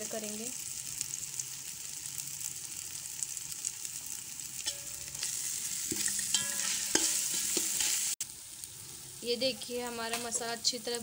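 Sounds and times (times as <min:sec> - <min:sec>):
onions sizzling in hot oil: 0:00.0 - 0:11.0
skimmer stirring in pot: 0:04.6 - 0:08.2.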